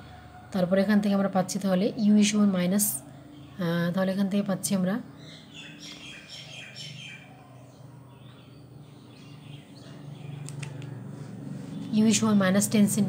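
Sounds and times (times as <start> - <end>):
birds chirping: 3.0 - 13.0.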